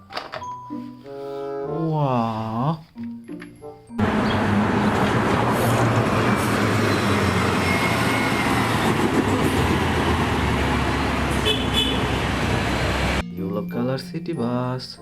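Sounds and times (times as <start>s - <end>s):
vehicle rumbling in motion: 4.0s - 13.2s.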